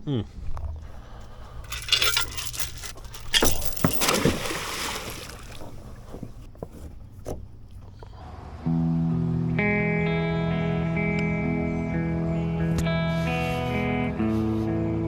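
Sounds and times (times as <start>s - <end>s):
water splashing: 3.1s - 6.5s.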